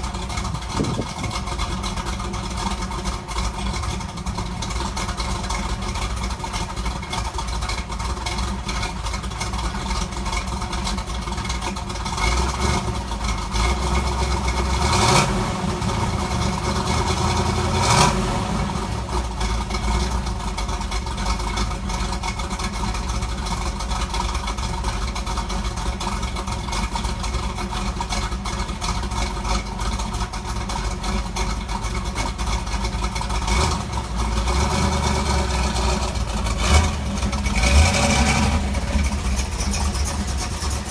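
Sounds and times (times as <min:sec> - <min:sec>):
engine throttle blips: 0:00.0 - 0:10.6, 0:28.2 - 0:40.9
car engine idling: 0:00.0 - 0:40.9.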